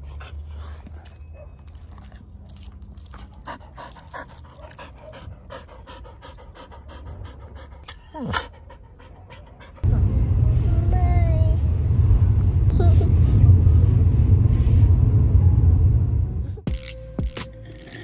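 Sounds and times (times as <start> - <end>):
animal panting: 3.0 - 9.8.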